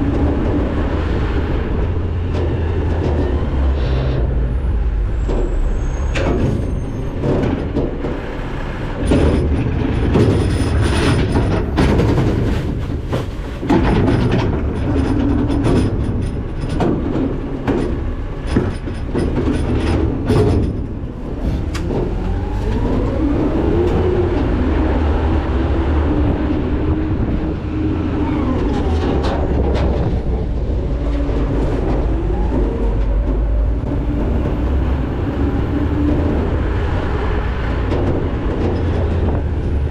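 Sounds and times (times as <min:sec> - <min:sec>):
garbage truck engine rumbling: 0:00.0 - 0:39.9
trash clattering into hopper: 0:05.2 - 0:24.3.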